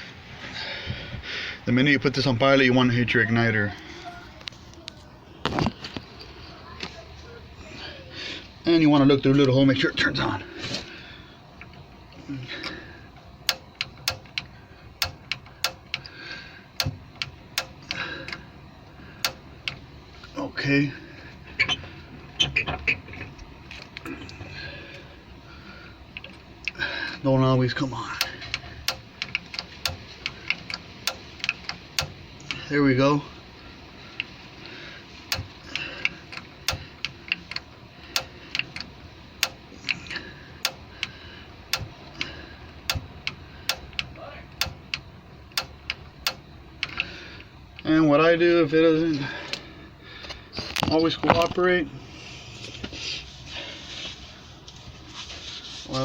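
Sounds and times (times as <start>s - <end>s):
piezo igniter clicking: 12.6s - 19.9s, 28.2s - 32.6s, 35.3s - 40.0s, 40.6s - 47.9s.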